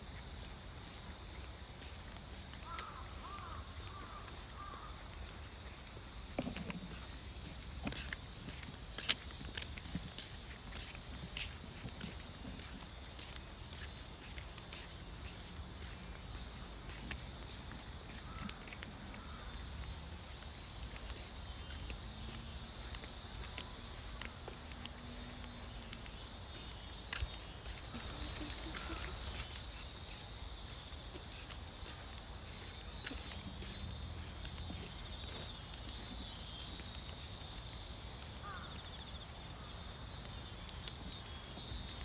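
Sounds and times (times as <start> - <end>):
footsteps on dirt path: 0.0 - 42.0
insects chirping in pulses: 25.4 - 30.0.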